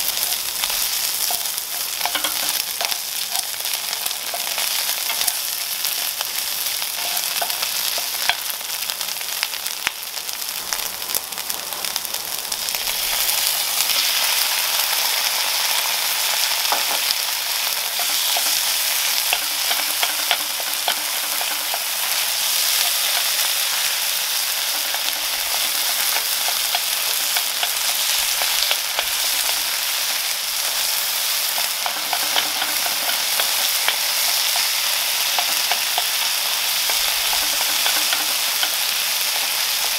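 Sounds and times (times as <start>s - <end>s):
meat sizzling in a frying pan: 0.0s - 39.9s
wooden spoon tapping and scraping pan: 0.2s - 6.2s, 7.0s - 8.5s, 16.6s - 17.2s, 17.8s - 23.9s, 24.6s - 29.7s, 31.5s - 39.0s.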